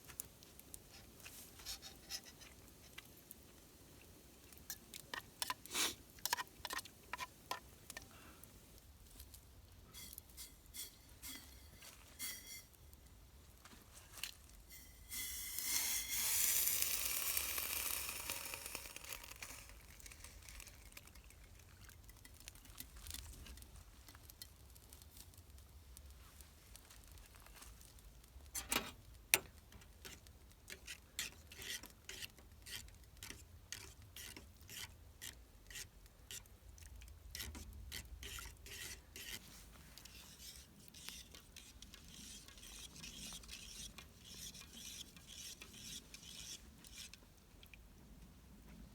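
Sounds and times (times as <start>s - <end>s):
food sizzling in a pan: 10.0s - 12.8s, 14.7s - 21.3s.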